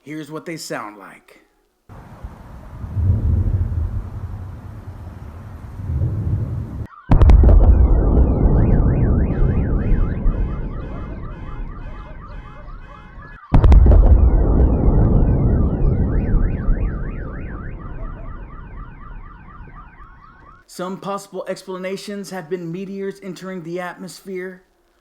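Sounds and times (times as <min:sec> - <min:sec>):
loud booms with low rumble: 0:01.9 - 0:20.6
car alarms warbling: 0:07.8 - 0:20.6.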